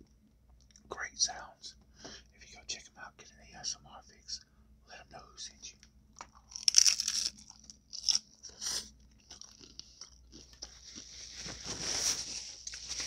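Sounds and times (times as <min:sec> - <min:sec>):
soft chewing: 0:05.5 - 0:11.6
taco crunching: 0:06.2 - 0:11.6.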